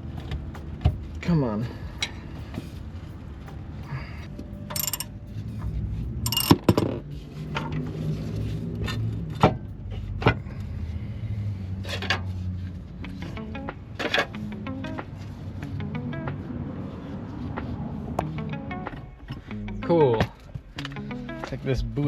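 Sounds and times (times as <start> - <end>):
low steady hum: 0.0 - 11.6
metallic clanks of hand tools: 4.7 - 5.1, 6.3 - 7.8.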